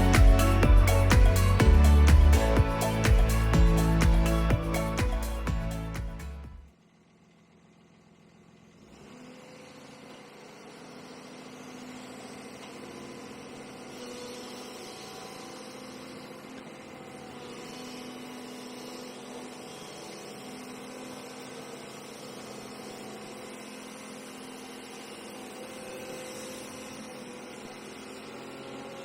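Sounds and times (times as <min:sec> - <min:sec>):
excavator diesel engine humming: 0:00.0 - 0:06.6.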